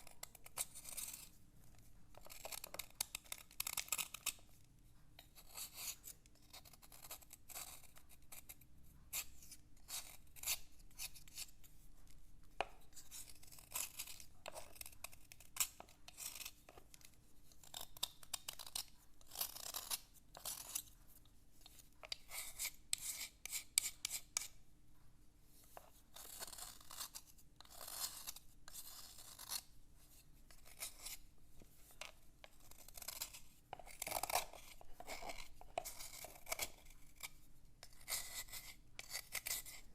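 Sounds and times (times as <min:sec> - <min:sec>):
scratching on a slate: 0:00.2 - 0:01.4, 0:12.6 - 0:21.0, 0:21.6 - 0:24.6, 0:25.6 - 0:39.9.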